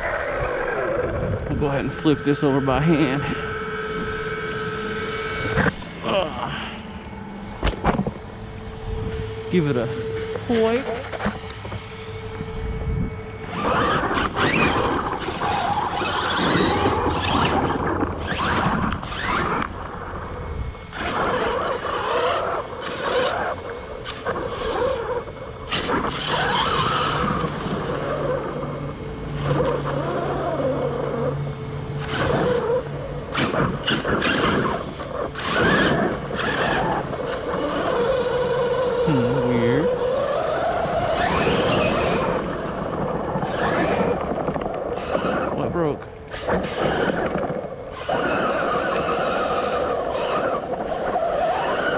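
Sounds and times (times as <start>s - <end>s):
rc car motor whining: 0.0s - 51.9s
tires skidding on gravel: 13.5s - 19.8s, 32.0s - 45.5s, 46.4s - 51.9s.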